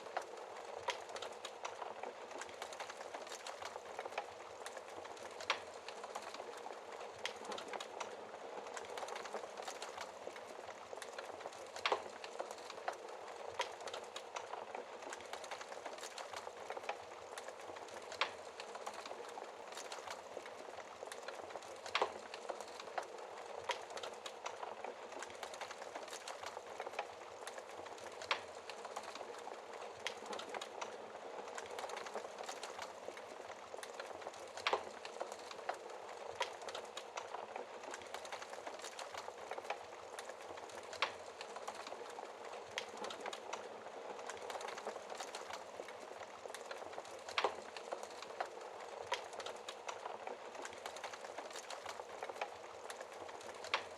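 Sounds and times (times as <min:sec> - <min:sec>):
wood fire crackling: 0:00.0 - 0:53.9.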